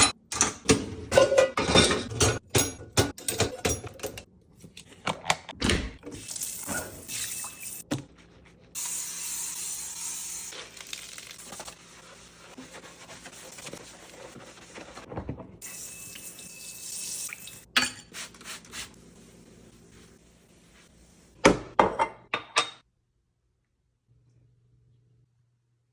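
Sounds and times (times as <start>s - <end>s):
dishes clattering: 0.0s - 4.2s, 21.5s - 22.8s
dishes knocking and clinking: 0.0s - 4.2s, 21.4s - 22.8s.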